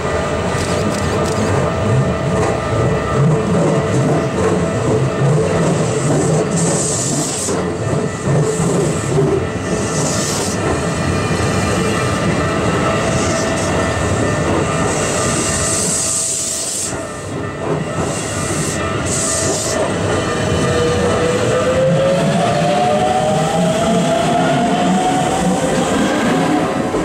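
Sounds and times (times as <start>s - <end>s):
train wheels on rails: 0.0s - 27.0s.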